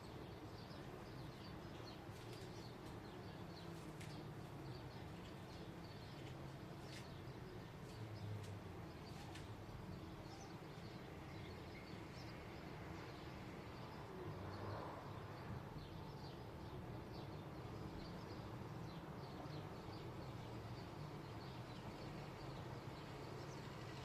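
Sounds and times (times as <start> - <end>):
small birds chirping: 0.0 - 14.1.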